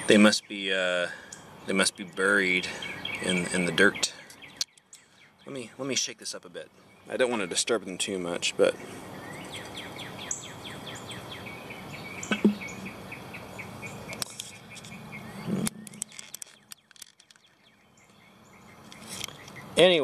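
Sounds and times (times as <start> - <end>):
bird trilling chirps: 0.0 - 6.0, 8.6 - 19.8
glass jar knocks: 12.3 - 12.7.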